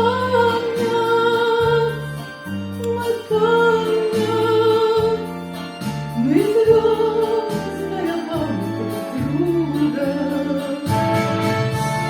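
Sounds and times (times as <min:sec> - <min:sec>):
person singing: 0:02.8 - 0:05.4, 0:06.2 - 0:12.0.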